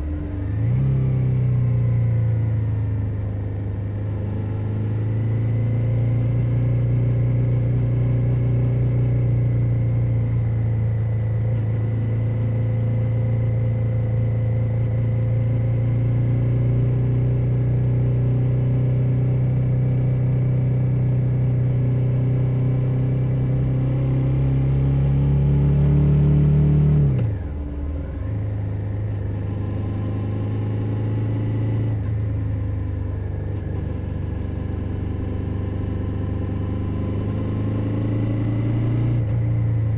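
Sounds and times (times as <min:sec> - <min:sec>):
motorcycle engine running: 0:27.2 - 0:39.9.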